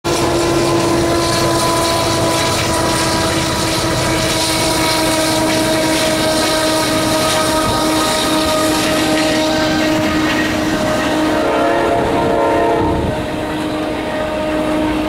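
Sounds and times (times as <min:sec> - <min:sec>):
train wheels rumbling on rail: 0:00.0 - 0:15.0
droning tone: 0:00.1 - 0:15.0.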